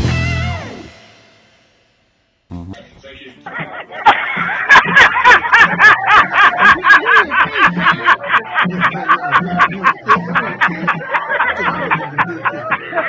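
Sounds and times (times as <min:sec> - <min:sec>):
man laughing hard: 0:02.6 - 0:13.0.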